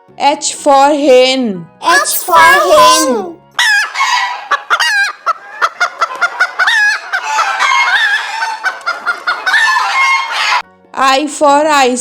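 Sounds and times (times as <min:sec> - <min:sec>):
hen clucking and cackling: 0:06.0 - 0:10.6.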